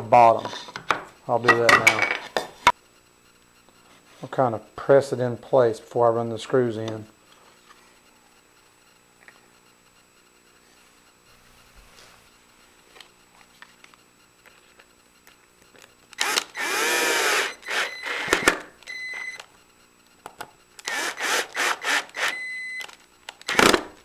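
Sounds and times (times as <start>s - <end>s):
power drill driving screws: 16.2s - 18.6s, 20.8s - 22.5s.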